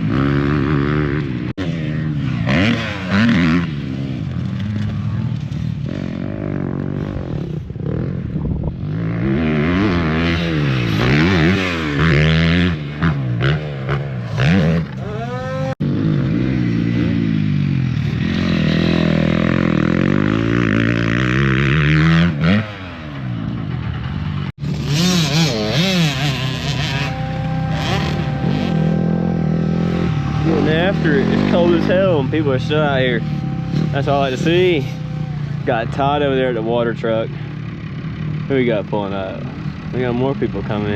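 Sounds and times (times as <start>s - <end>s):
dirt bike engines revving: 0.0s - 40.9s.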